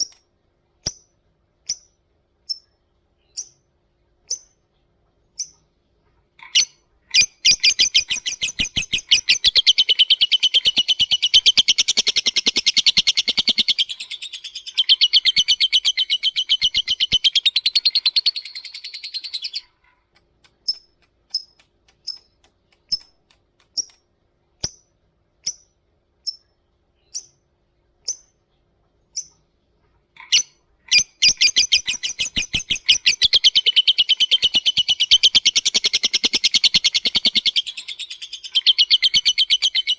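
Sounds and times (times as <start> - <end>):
bird chattering trill: 6.4 - 19.7, 30.2 - 39.9
sharp bird chirps: 6.5 - 19.7, 30.2 - 39.9.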